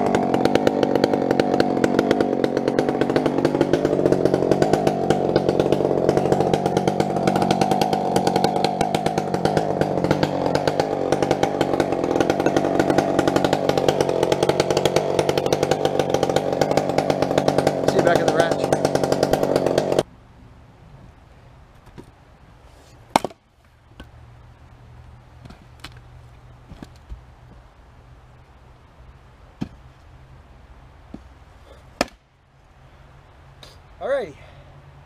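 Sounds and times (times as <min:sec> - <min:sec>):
chainsaw cutting through log: 0:00.0 - 0:20.1.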